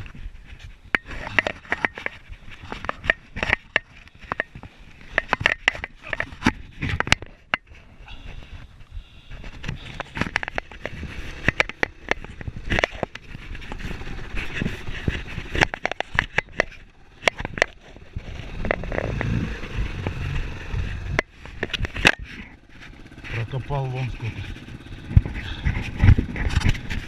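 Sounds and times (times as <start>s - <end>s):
sharp knocks and clicks: 0.9s - 7.7s, 9.5s - 20.2s
low rumble: 18.0s - 21.5s.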